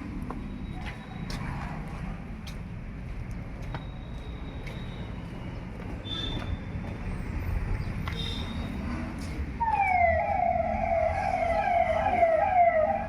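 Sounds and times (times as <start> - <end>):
siren-like sweeping tone: 9.6 - 13.0.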